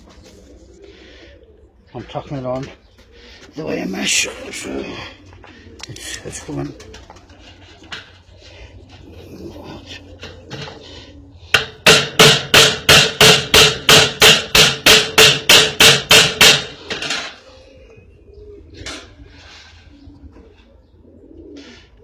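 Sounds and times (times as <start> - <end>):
hammer striking tacks: 11.6 - 16.7.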